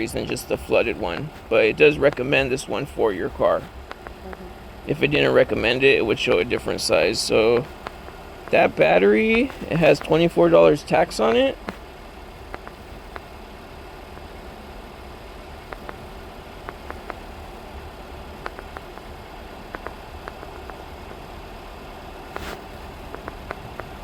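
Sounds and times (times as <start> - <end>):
engine idling hum: 0.0 - 24.0
light clicks and taps: 3.3 - 4.3, 18.4 - 19.1, 19.7 - 21.2, 22.4 - 24.0.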